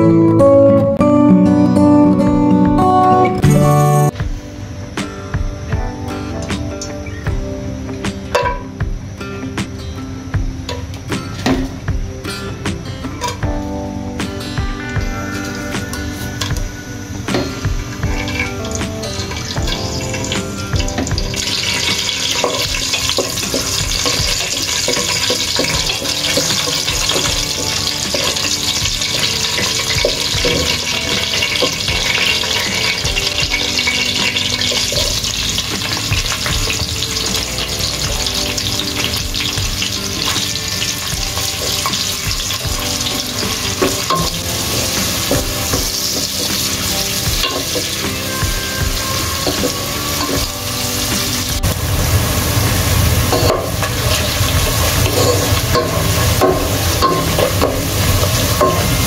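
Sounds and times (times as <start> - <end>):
hot oil sizzling: 15.1 - 59.0.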